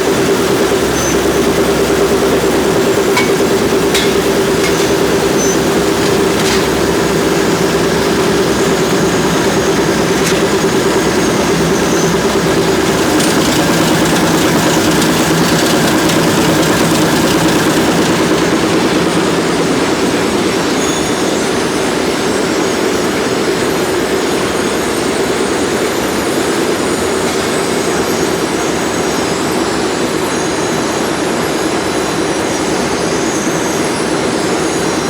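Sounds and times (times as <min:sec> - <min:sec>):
factory machinery running: 0:00.0 - 0:35.0.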